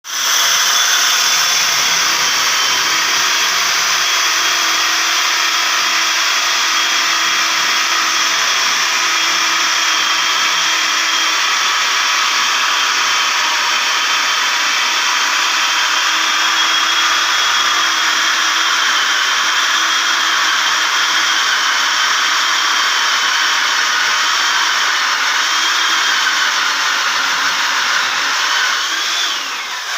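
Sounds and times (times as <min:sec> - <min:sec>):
electric motor whining: 0:00.1 - 0:12.0.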